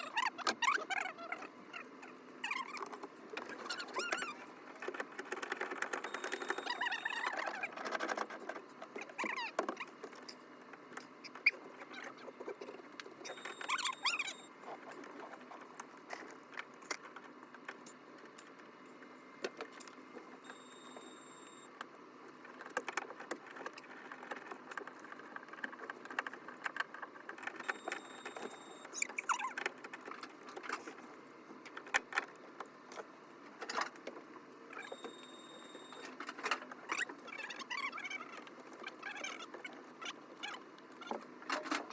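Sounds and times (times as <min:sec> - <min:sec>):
short squeaks: 0:00.0 - 0:04.9, 0:05.8 - 0:08.4, 0:09.0 - 0:10.4, 0:11.2 - 0:15.5, 0:36.8 - 0:41.9.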